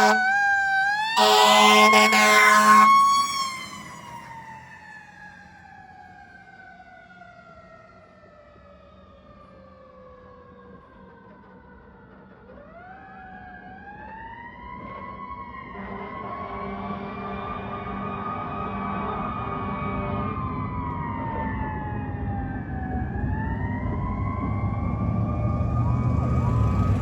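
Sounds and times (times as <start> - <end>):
fire engine siren winding: 0.0 - 6.0.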